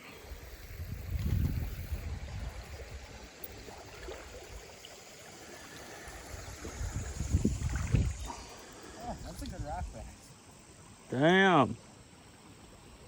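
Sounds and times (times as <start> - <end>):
creek water trickling: 0.0 - 13.0.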